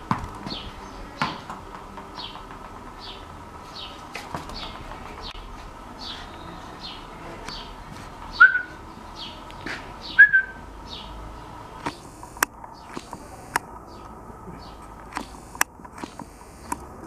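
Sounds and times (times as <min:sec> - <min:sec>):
bird chirping: 0:03.0 - 0:15.6
whistle-like squeak: 0:10.2 - 0:10.6
sharp ticks: 0:11.8 - 0:13.7, 0:15.0 - 0:16.9.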